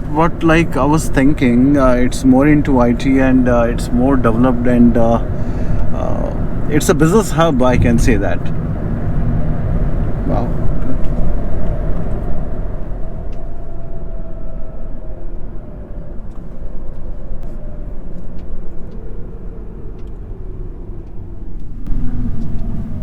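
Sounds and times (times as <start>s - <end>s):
engine and tyre rumble: 0.0s - 23.0s
faint whine: 0.0s - 23.0s.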